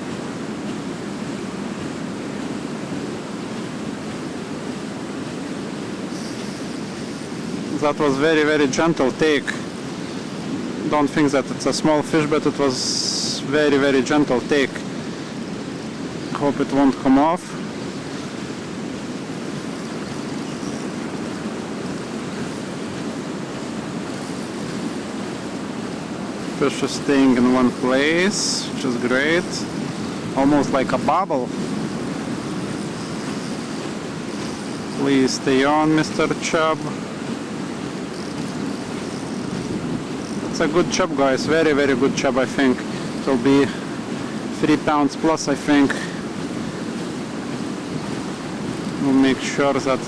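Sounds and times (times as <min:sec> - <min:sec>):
river water rushing: 0:00.0 - 0:50.0.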